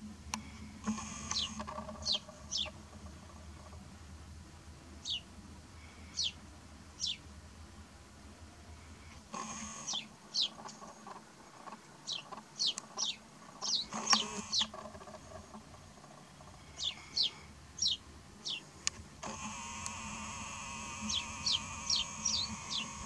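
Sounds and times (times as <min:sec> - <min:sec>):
small birds chirping: 0:00.3 - 0:04.0, 0:04.8 - 0:07.3, 0:08.7 - 0:23.0
rustle with sharp click: 0:09.1 - 0:16.1.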